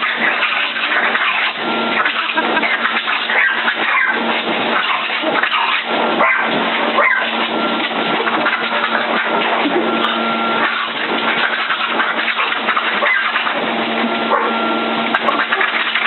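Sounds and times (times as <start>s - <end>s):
dog barking: 6.2s - 7.4s, 14.3s - 14.6s.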